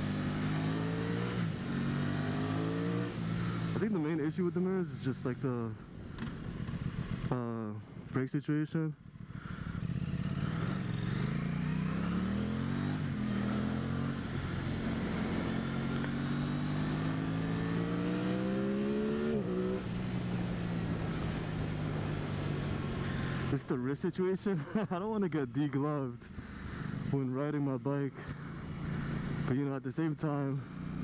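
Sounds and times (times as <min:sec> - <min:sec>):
motorcycle engine accelerating: 0:00.0 - 0:04.2, 0:05.9 - 0:07.5, 0:09.0 - 0:23.6, 0:28.3 - 0:29.6, 0:30.6 - 0:31.0
road and wind noise: 0:00.0 - 0:31.0.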